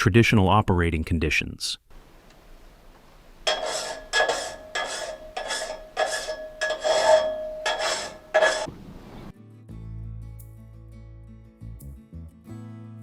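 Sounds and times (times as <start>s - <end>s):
file rasping on saw blade: 3.4s - 8.7s
blade ringing metallic tone: 3.5s - 8.7s.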